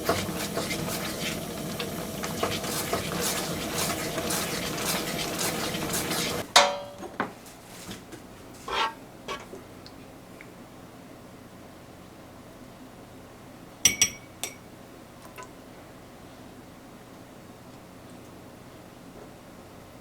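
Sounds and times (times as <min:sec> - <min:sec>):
metal spoon scraping a pot: 0:02.2 - 0:06.4, 0:08.7 - 0:09.5.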